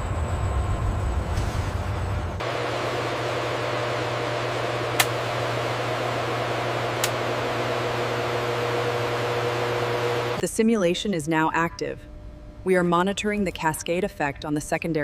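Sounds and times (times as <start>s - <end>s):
machine hum with hiss: 0.0s - 10.4s
sharp clicks: 4.9s - 5.2s.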